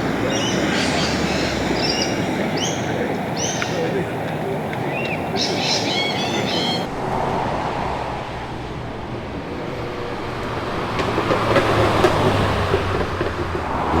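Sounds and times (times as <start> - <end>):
birds chirping: 0.0 - 6.9
car engine rumbling: 0.0 - 14.0
engine ticks and pops: 10.2 - 14.0.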